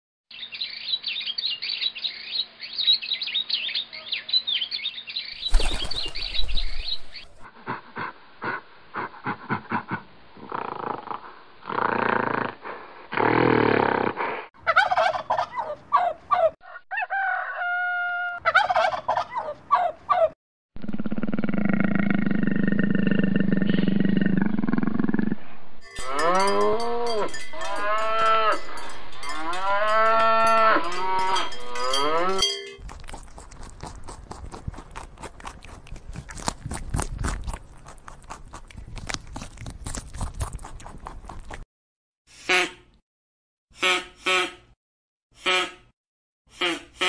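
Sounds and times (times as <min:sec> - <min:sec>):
animal growling: 0:09.5 - 0:14.5, 0:20.8 - 0:25.4
loud warbling animal calls: 0:18.4 - 0:25.4.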